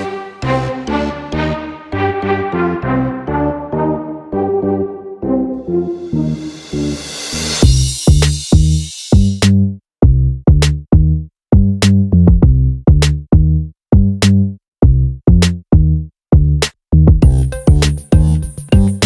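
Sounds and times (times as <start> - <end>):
hissing sweep: 5.7 - 9.1
electronic drum machine beat: 7.6 - 9.4, 17.2 - 19.0.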